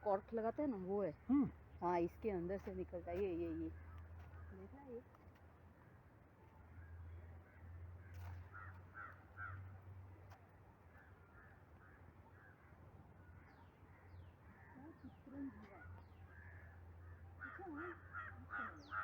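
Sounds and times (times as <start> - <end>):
crows cawing: 7.5 - 9.8, 16.3 - 19.0.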